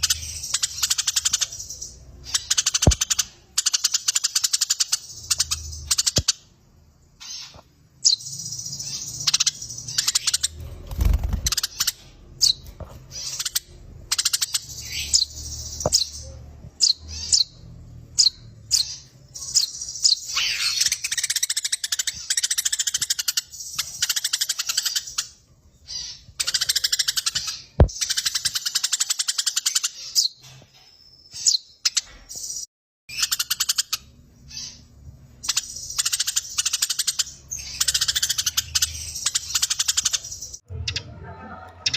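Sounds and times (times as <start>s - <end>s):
sparrows chirping: 0.0s - 41.9s.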